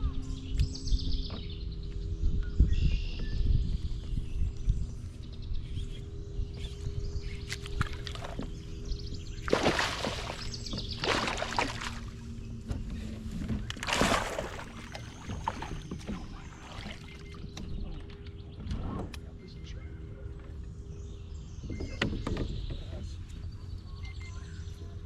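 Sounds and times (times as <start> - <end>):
boat low hum: 0.0 - 25.0
rushes of water: 9.4 - 17.6.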